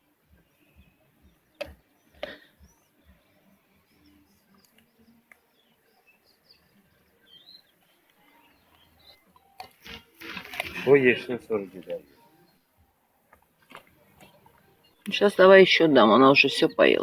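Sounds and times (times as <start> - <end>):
faint bird chirps: 0.0 - 9.6, 14.0 - 17.0.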